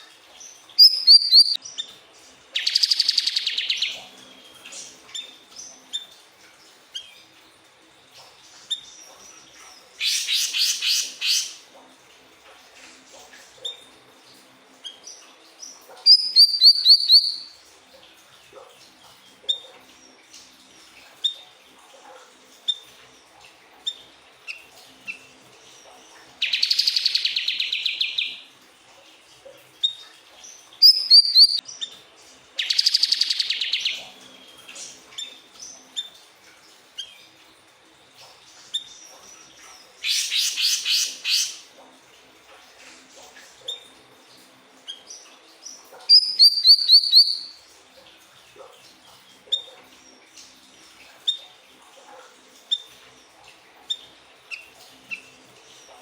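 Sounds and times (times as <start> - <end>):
bird chirping: 0.4 - 1.9, 2.6 - 4.1, 10.0 - 11.6, 16.0 - 17.5, 26.4 - 28.4, 30.8 - 31.9, 32.6 - 34.1, 38.8 - 41.6, 44.9 - 47.6
rapid pulsing bird trills: 0.8 - 1.6, 30.8 - 31.6.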